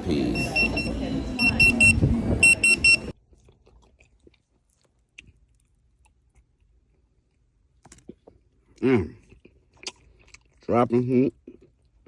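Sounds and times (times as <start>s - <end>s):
high electronic beeps: 0.3s - 3.1s
faint chewing: 3.2s - 12.0s.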